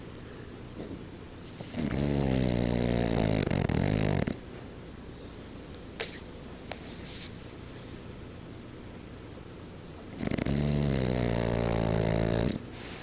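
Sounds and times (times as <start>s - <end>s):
dog snoring: 0.8s - 4.4s, 10.1s - 12.9s
dog breathing: 5.1s - 8.6s.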